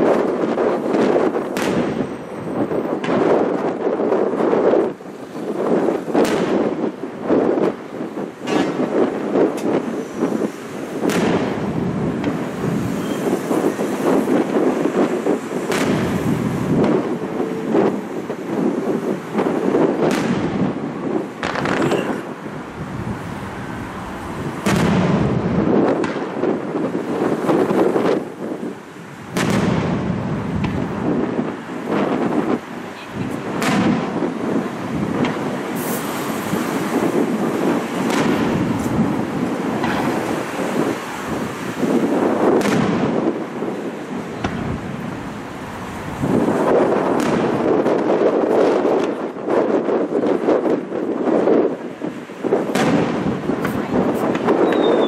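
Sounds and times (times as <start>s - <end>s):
firework shells booming: 0.0s - 5.0s, 5.6s - 22.6s, 24.5s - 32.6s, 33.3s - 43.6s, 44.2s - 50.8s, 52.5s - 55.0s
passing road traffic: 0.0s - 55.0s
wind: 0.0s - 55.0s
firework shells bursting: 0.1s - 2.4s, 10.6s - 22.5s, 29.3s - 31.0s, 35.1s - 40.9s, 52.7s - 55.0s.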